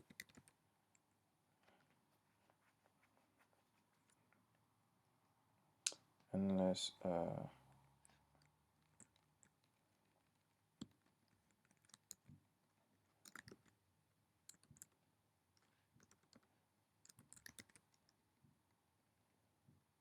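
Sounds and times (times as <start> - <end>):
computer keyboard typing: 0.0 - 0.6, 13.1 - 13.8, 14.5 - 15.0, 15.6 - 18.1.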